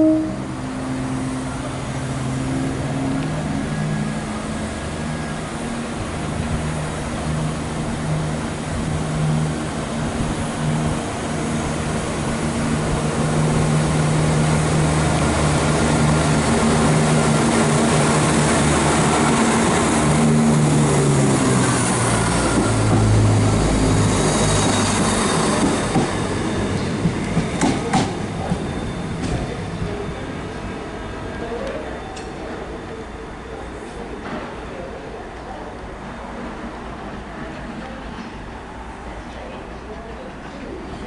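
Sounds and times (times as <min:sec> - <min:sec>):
train diesel engines: 0:00.0 - 0:41.0.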